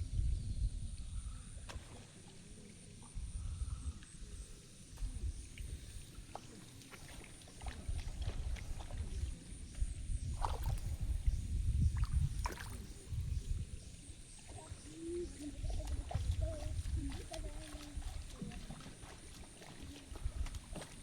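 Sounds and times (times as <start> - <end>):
wind rumble on microphone: 0.0 - 21.0
shallow water sloshing and splashing: 5.0 - 21.0.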